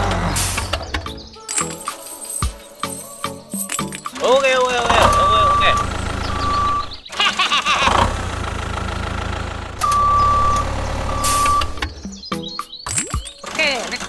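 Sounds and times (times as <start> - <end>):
squeaky chirp: 0.6 - 8.0, 9.8 - 14.0
tractor engine rumble: 2.9 - 12.1
high-pitched reversing beeps: 4.8 - 7.0, 9.8 - 11.8
sharp clicks: 12.9 - 14.0.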